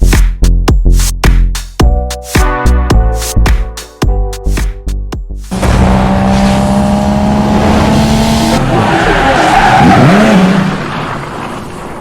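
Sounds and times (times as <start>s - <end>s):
car engine running hard: 5.5s - 12.0s
tyres skidding: 5.5s - 12.0s.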